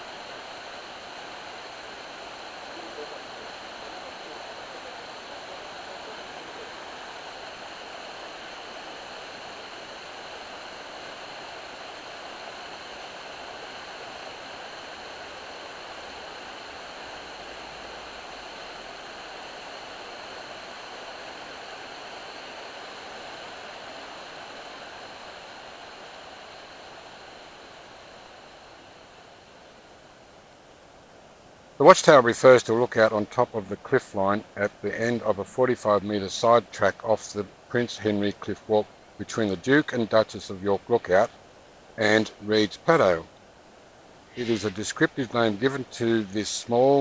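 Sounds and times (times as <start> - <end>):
waterfall roar: 0.0 - 30.3, 44.1 - 47.0.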